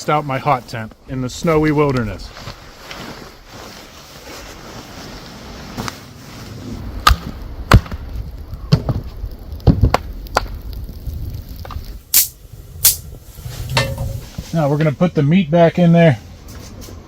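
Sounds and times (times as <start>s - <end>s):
low rumble: 10.2s - 14.5s.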